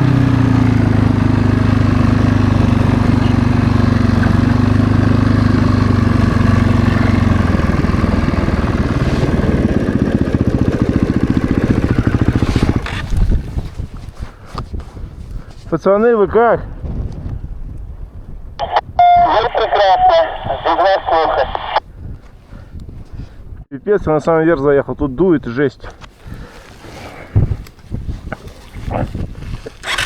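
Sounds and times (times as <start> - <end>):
snowbike engine revving: 0.0 - 13.5, 29.7 - 30.0.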